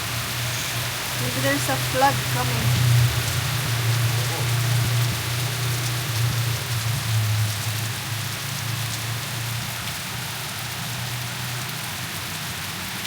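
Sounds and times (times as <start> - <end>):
constant low rumble: 0.0 - 10.0
heavy rain on hard surfaces: 0.0 - 13.0.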